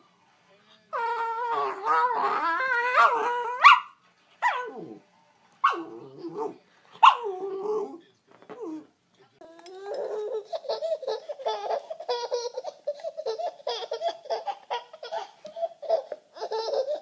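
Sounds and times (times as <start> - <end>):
dog howling and whining: 0.9 - 5.0, 5.6 - 8.9
dog yelping: 1.0 - 5.0, 5.6 - 8.0.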